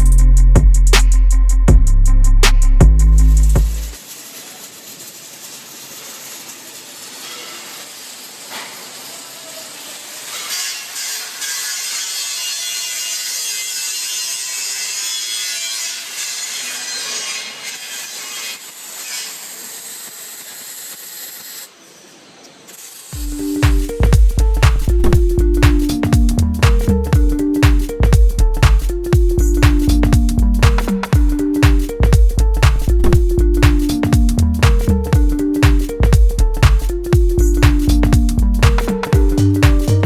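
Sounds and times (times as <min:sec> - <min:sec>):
welding hiss with crackles: 0:03.9 - 0:23.9.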